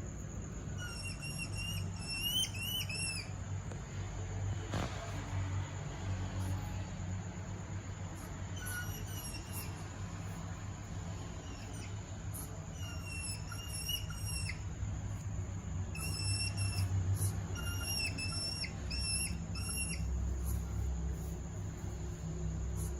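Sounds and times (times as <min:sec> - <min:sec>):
steady low hum: 0:00.0 - 0:22.9
hedgehogs whistling chirps: 0:00.7 - 0:03.4, 0:08.1 - 0:22.9.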